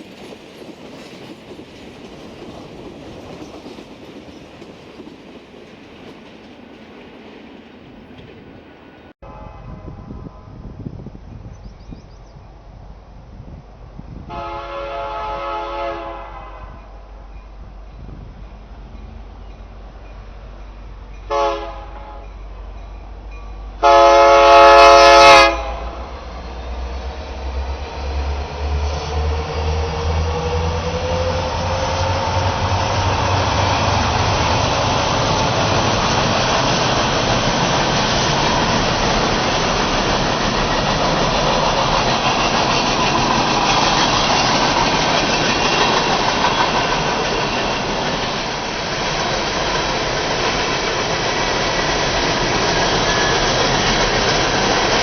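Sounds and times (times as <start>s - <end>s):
train wheels rumbling on rails: 0.0s - 55.0s
locomotive air horn: 9.2s - 10.6s, 14.3s - 17.1s, 21.3s - 22.4s, 23.8s - 26.2s.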